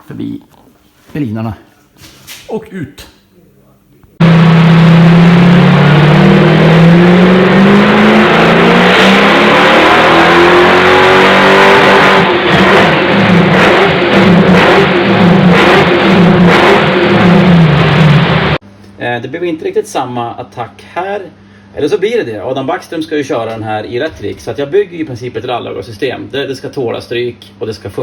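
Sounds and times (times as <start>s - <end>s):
loud car engine revving: 4.2s - 18.6s.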